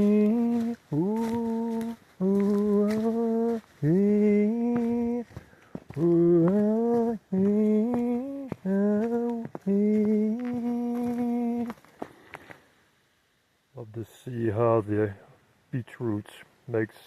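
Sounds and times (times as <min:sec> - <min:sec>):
person humming a slow melody: 0:00.0 - 0:11.8.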